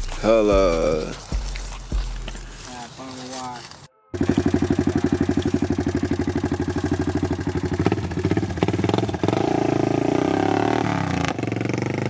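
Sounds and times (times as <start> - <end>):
four-wheeler engine running: 4.2 - 12.0.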